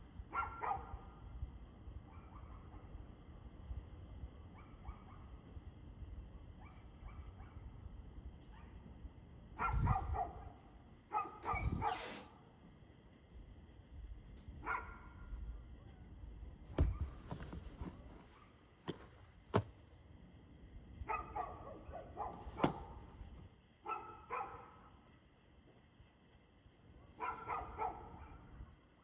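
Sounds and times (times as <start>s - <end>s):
dog barking: 0.3s - 1.1s, 2.1s - 2.9s, 4.6s - 5.3s, 6.6s - 7.6s, 9.6s - 12.3s, 14.6s - 15.2s, 21.1s - 23.0s, 23.8s - 24.9s, 27.0s - 28.5s.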